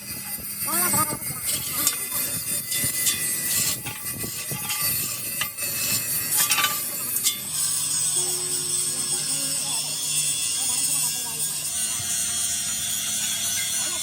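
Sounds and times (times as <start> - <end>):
metal scraping and rubbing: 0.0 - 14.0
metal knocks and clinks: 0.1 - 8.1.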